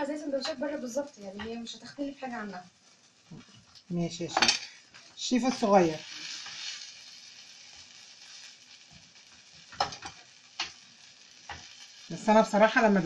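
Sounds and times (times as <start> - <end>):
food sizzling in a pan: 0.0 - 13.0
metal spatula clicking on pan: 9.7 - 10.8.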